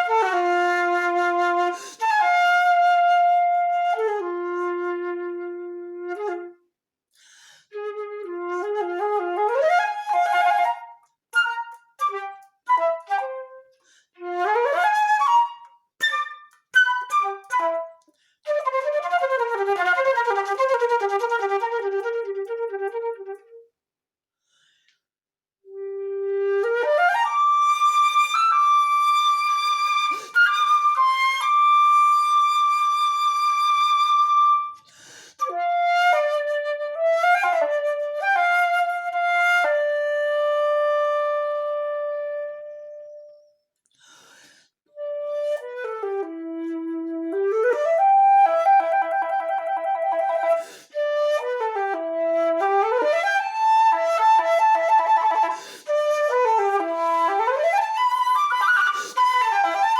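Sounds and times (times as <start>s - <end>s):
solo flute playing: 0.0s - 6.7s, 7.7s - 23.6s, 25.7s - 43.6s, 44.9s - 59.9s
flautist breathing: 1.7s - 2.1s, 7.1s - 7.8s, 13.7s - 14.3s, 18.0s - 18.5s, 24.4s - 25.1s, 30.0s - 30.6s, 34.8s - 35.5s, 43.8s - 44.8s, 50.4s - 51.1s, 55.4s - 56.0s, 58.4s - 59.9s.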